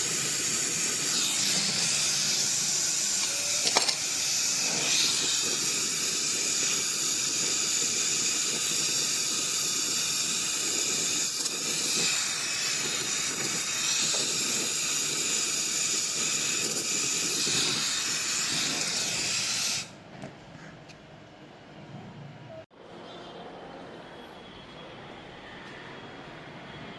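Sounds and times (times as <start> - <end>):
pressurised gas hissing: 0.0 - 20.0.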